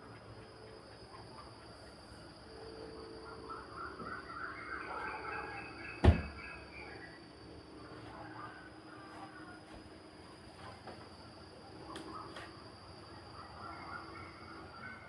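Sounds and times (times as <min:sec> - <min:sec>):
faint outdoor ambience: 0:00.0 - 0:15.0
wavering bird calls: 0:02.8 - 0:07.5, 0:13.1 - 0:15.0.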